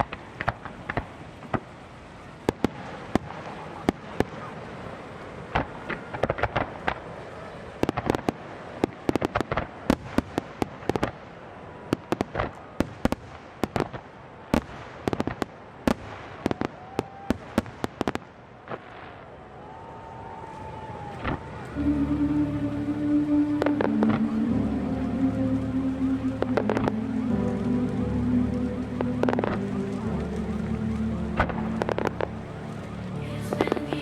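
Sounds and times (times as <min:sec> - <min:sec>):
fireworks bangs: 0:21.0 - 0:34.0.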